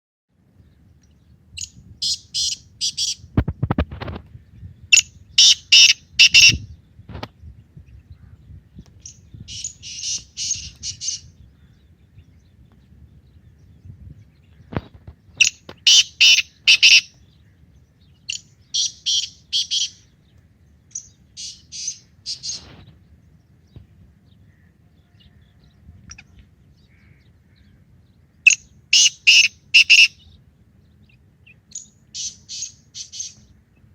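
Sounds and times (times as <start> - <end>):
francolin calling: 1.6 - 3.2, 4.9 - 6.7, 9.0 - 11.8, 15.4 - 20.2, 20.9 - 22.7, 28.4 - 30.4, 31.0 - 33.4.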